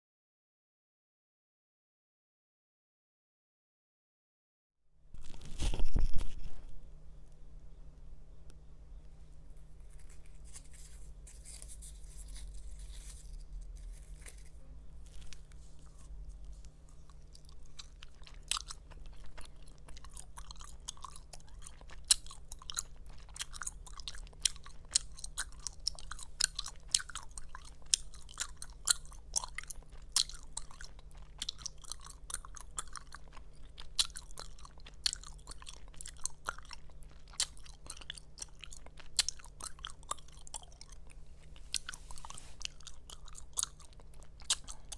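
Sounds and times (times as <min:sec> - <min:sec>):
gum chewing smacks and pops: 0:16.6 - 0:44.9.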